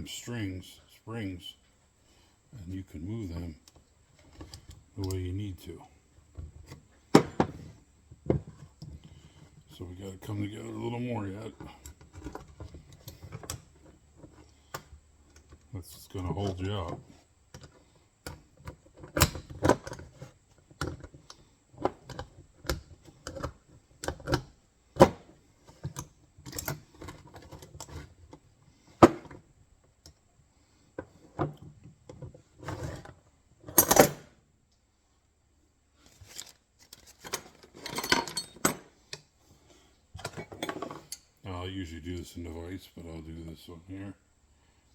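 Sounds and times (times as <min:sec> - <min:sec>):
steel trap parts clinking: 0:33.7 - 0:34.2, 0:37.2 - 0:38.9, 0:40.2 - 0:41.3.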